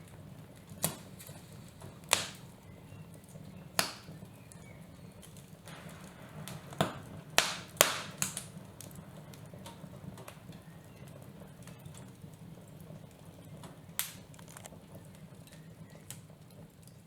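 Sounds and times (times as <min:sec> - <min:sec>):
steady low hum: 0:01.4 - 0:12.4.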